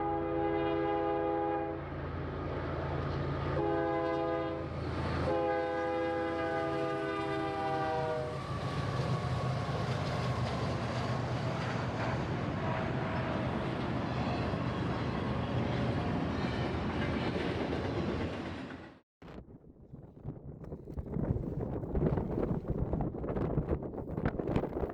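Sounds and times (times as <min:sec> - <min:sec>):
locomotive air horn: 0:00.0 - 0:01.9, 0:03.5 - 0:08.5
train rumbling: 0:00.0 - 0:24.9.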